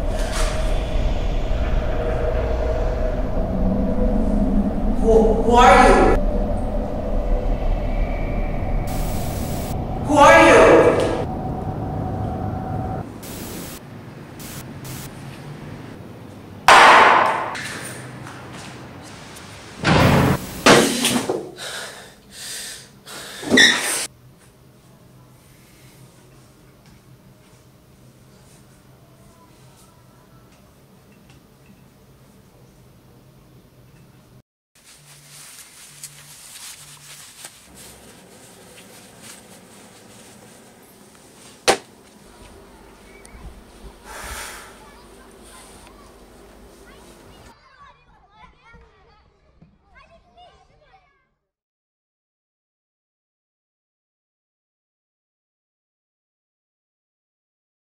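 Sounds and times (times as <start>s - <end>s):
loud crash: 0.0s - 5.1s, 16.7s - 17.6s, 19.8s - 21.2s
room hiss: 6.9s - 15.9s
faint hiss: 8.8s - 10.0s, 13.2s - 15.2s.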